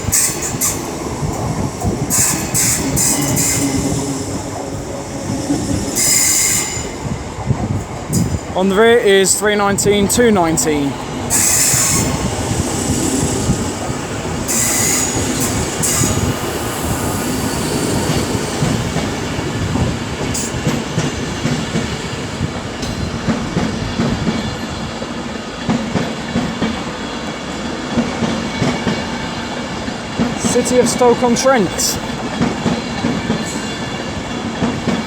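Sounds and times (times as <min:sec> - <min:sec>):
train rolling with rumble: 0:00.0 - 0:35.0
high-pitched wheel squeals: 0:05.2 - 0:07.0, 0:14.5 - 0:16.3.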